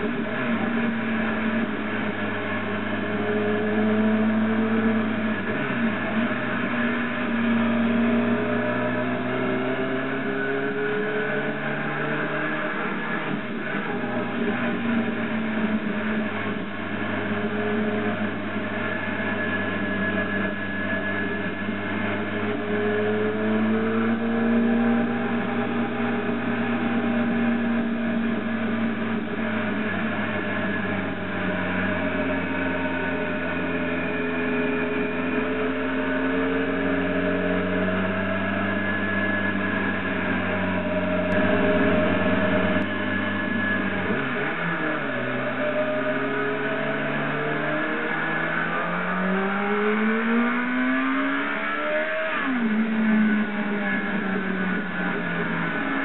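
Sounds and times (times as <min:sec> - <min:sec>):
motorcycle engine running: 0:10.8 - 0:47.3.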